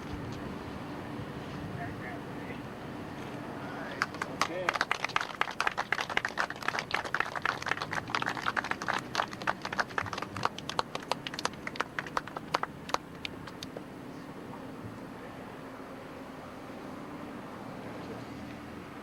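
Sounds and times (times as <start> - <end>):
audience applauding: 3.8 - 13.7.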